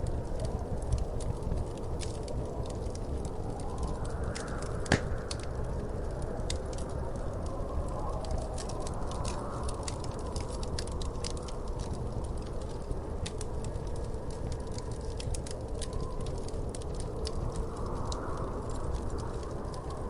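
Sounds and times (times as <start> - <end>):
wood fire crackling: 0.0 - 20.0
loud pop from fire: 4.8 - 5.5.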